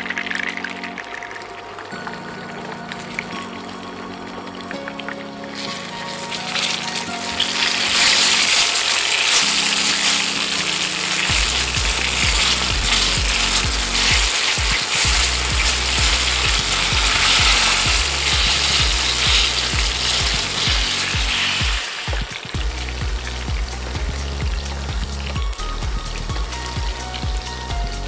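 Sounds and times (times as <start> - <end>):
eggplant sizzling in oil: 0.0 - 27.7
background music with bass beat: 11.2 - 28.0.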